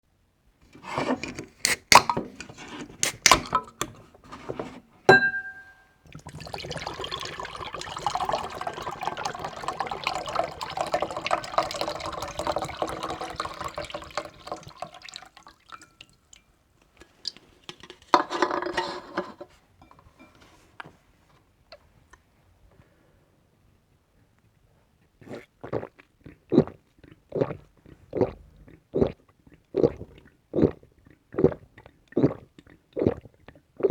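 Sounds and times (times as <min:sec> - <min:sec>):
glass clicks and knocks: 0:05.1 - 0:05.8
glass clink: 0:05.1 - 0:06.0
drink pouring into glass: 0:05.2 - 0:16.2.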